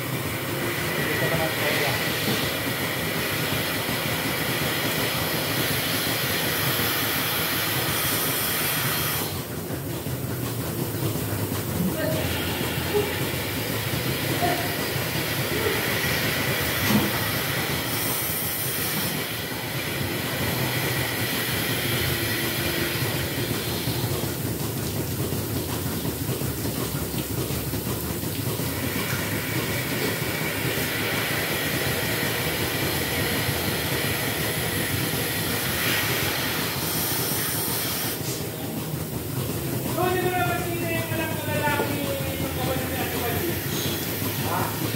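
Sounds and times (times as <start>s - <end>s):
milking machinery rumbling: 0.0s - 44.9s
machinery hiss: 0.1s - 9.5s, 28.8s - 39.1s, 39.9s - 44.9s.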